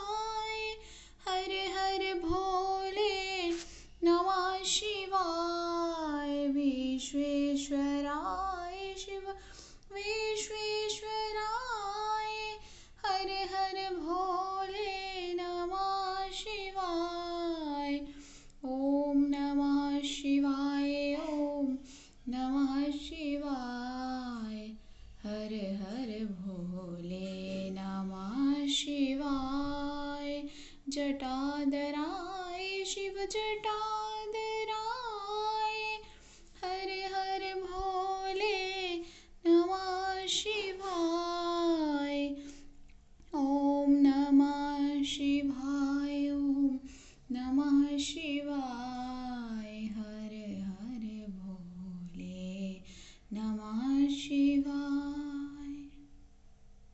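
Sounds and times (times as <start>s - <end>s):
woman singing devotional melody: 0.0s - 42.6s, 43.2s - 56.1s.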